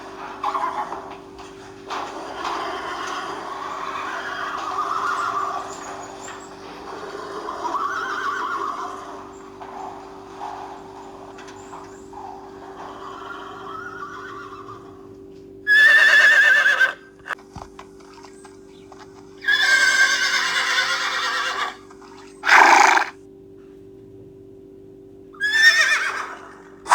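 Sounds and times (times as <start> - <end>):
horse whinnying: 2.0 - 6.2, 7.1 - 9.3, 12.7 - 15.0, 15.7 - 17.4, 19.4 - 23.1, 25.4 - 26.9.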